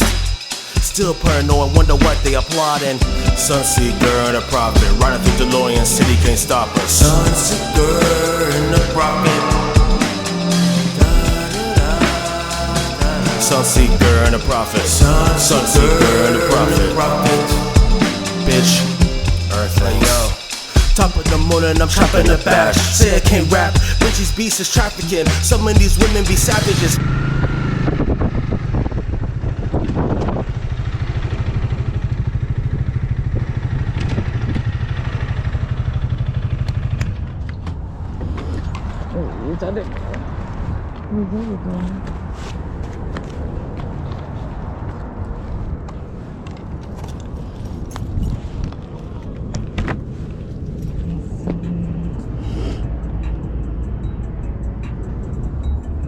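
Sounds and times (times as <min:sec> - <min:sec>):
motorcycle engine running: 0:00.0 - 0:38.2
road and wind noise: 0:00.0 - 0:56.0.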